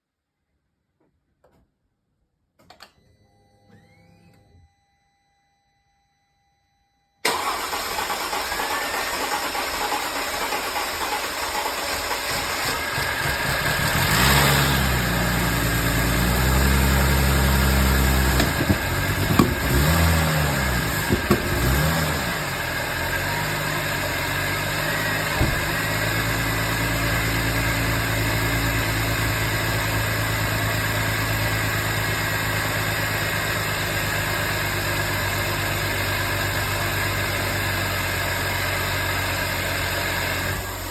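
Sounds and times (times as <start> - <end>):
car engine revving and idling: 7.4 - 40.9.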